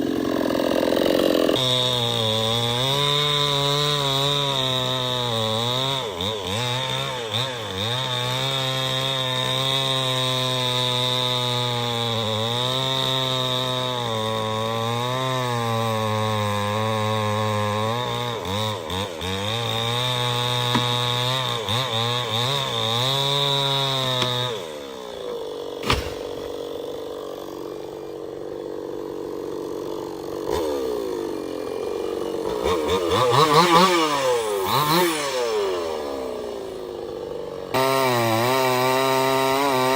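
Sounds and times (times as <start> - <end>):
chainsaw cutting wood: 0.0 - 39.9
sharp knock: 25.8 - 26.6.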